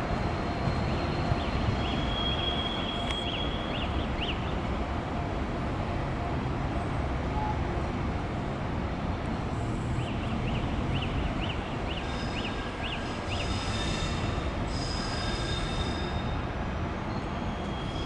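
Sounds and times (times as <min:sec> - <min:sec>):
train wheels squealing: 0:00.0 - 0:04.4, 0:11.8 - 0:18.0
train rolling with low rumble: 0:00.0 - 0:18.0.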